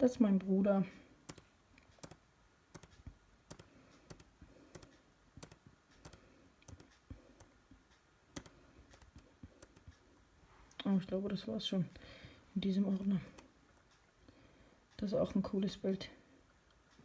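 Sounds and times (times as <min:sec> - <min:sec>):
faint computer mouse clicks: 0:01.3 - 0:07.6.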